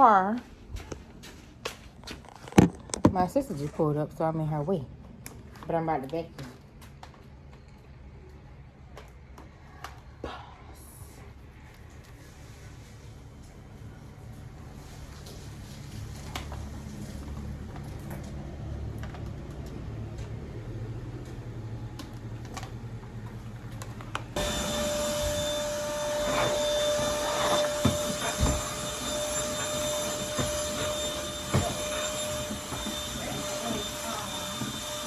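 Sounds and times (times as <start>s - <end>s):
vacuum cleaner motor whine: 14.8s - 35.0s.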